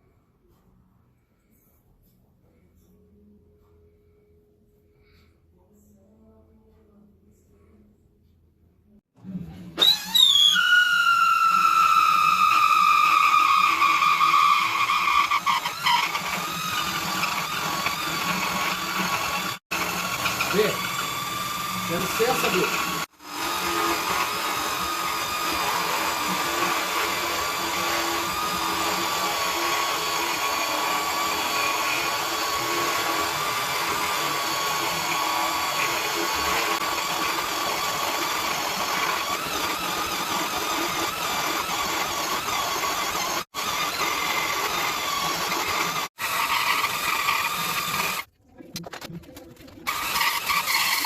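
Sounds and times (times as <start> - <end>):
electric motor whining: 9.8 - 48.3.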